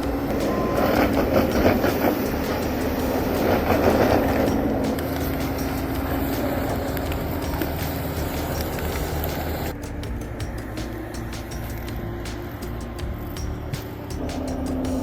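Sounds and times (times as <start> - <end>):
heavy machine engine humming: 0.0 - 15.0.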